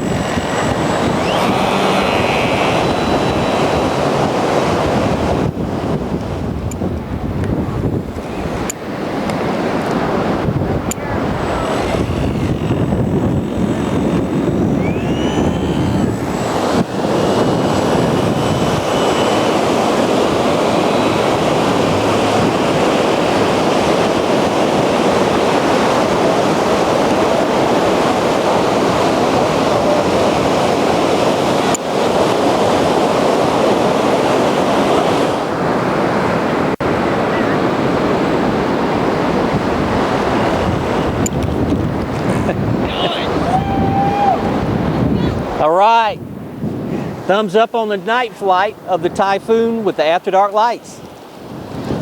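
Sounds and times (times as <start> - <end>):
model plane motor whining: 0.0 - 6.8, 8.2 - 36.7
wind noise on microphone: 0.0 - 49.9, 50.8 - 52.0
surf: 0.0 - 52.0.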